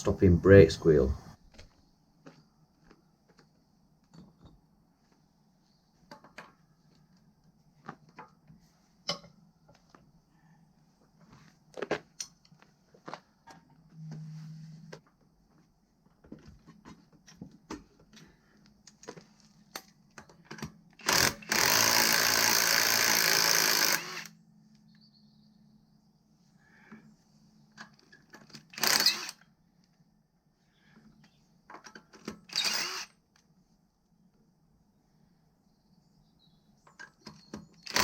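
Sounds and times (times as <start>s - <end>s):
power tool bursts: 21.0s - 24.3s, 28.7s - 29.4s, 32.5s - 33.1s.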